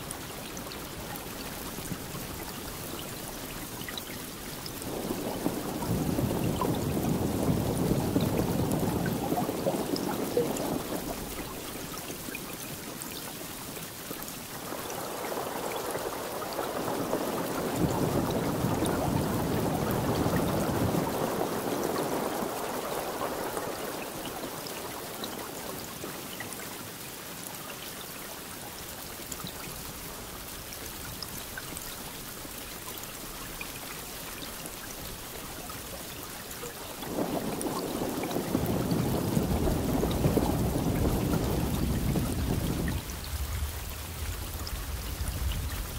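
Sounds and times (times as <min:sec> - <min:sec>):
steady rain: 0:00.0 - 0:45.9
thunder rumbling: 0:04.7 - 0:12.3, 0:14.6 - 0:25.4, 0:36.9 - 0:45.9.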